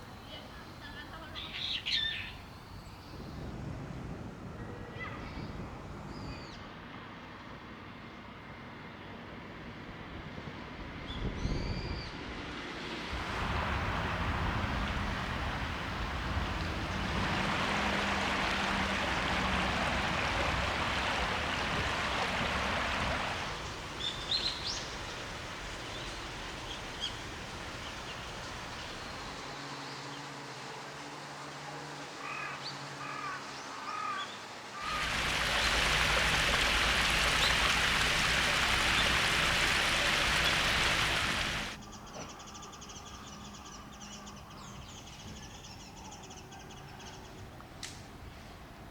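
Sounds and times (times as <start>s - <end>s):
small birds chirping: 0.0s - 3.4s, 34.8s - 45.7s
water running and splashing: 13.2s - 29.6s, 34.8s - 41.8s.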